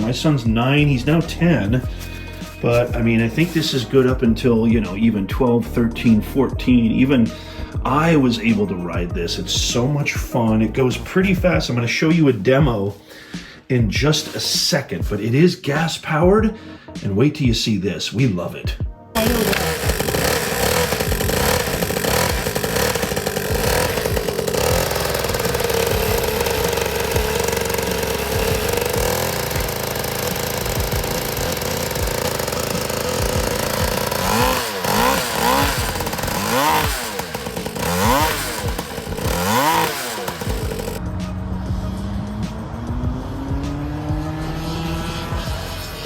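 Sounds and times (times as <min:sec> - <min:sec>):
small engine running and revving: 0:00.0 - 0:04.9, 0:19.2 - 0:46.0.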